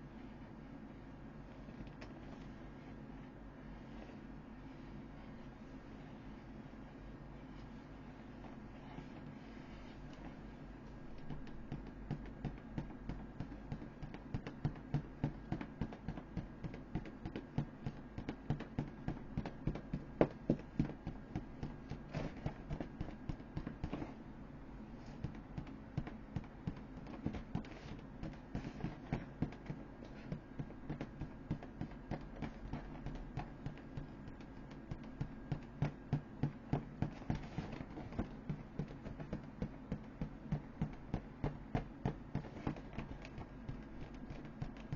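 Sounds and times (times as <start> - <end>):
steady low hum: 0.0 - 44.9
dull taps on inflatable toy: 10.9 - 24.1, 25.2 - 44.9.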